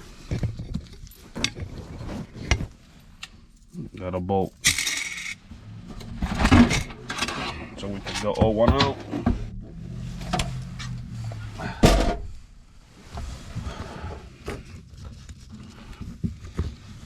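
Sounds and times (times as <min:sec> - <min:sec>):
metal hardware clicks and knocks: 0:04.5 - 0:09.6
loud metal clunk: 0:05.7 - 0:12.7.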